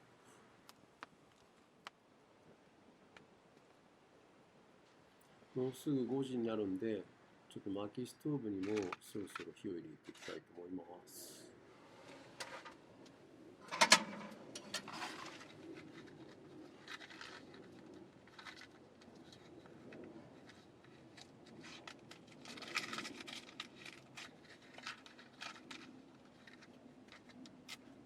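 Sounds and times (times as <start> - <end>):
rustling: 8.5 - 10.5, 11.7 - 28.0
handling clicks and knocks: 13.6 - 16.2.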